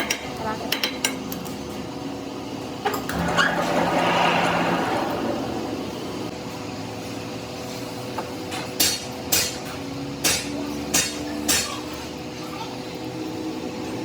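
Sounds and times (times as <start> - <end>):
machine hum: 3.0 - 7.0.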